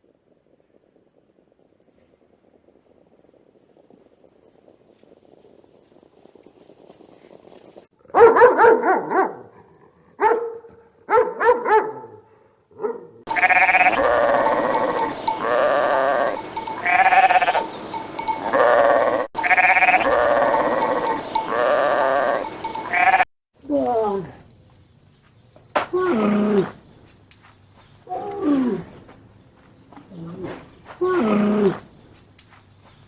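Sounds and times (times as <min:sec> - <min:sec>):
sheep bleating: 0:13.3 - 0:23.3.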